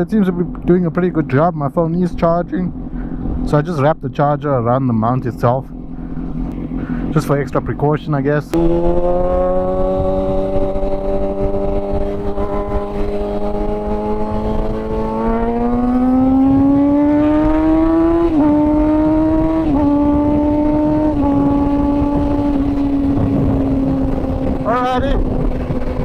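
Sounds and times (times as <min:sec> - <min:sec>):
motorcycle engine revving: 0:08.5 - 0:26.0
wind buffeting microphone: 0:08.5 - 0:26.0.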